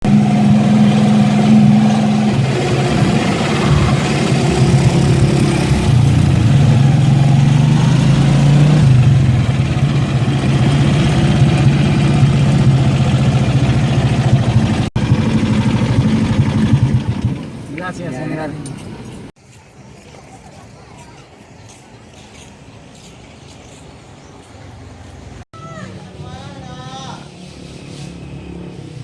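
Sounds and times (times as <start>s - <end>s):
engine running loudly: 0.0s - 19.3s.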